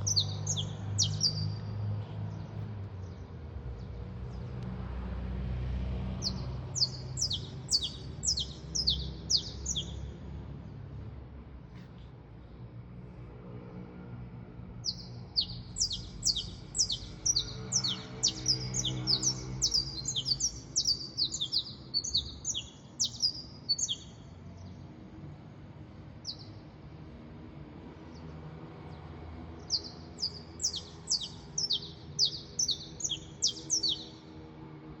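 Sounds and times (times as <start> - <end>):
songbird singing: 0.0 - 4.7, 6.1 - 10.3, 14.8 - 25.1, 26.1 - 27.1, 27.9 - 34.5.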